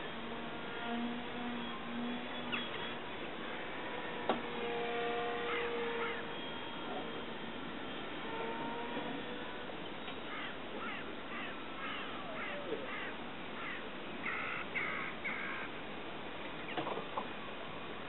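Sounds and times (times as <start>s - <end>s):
harsh bird calls: 10.1s - 15.7s
bird falling calls: 10.2s - 15.7s.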